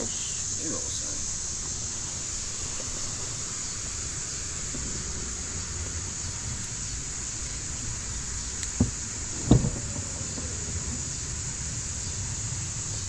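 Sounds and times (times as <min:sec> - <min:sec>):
outdoor hiss: 0:00.0 - 0:13.0
dull thumps: 0:08.7 - 0:11.0.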